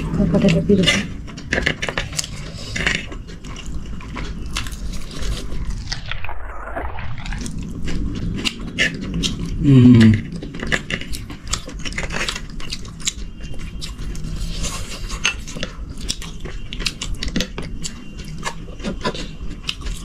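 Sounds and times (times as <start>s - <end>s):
biting and chewing food: 0.0s - 20.0s
short voice sound: 9.6s - 10.2s.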